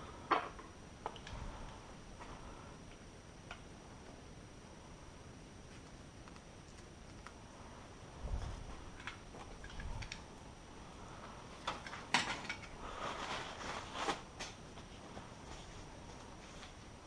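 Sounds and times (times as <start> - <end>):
rustling: 5.7 - 17.0.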